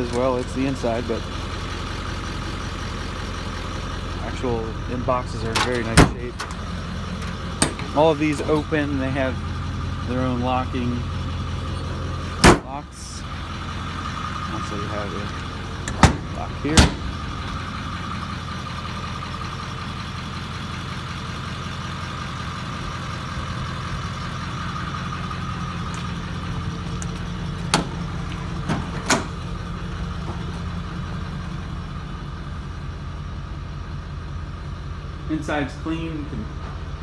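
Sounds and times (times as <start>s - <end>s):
truck engine idling: 0.0s - 37.0s.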